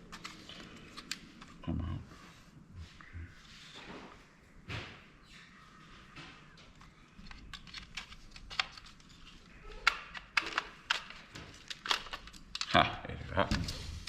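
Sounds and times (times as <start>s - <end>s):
plastic and metal parts clicking: 0.1s - 1.6s, 6.7s - 12.8s.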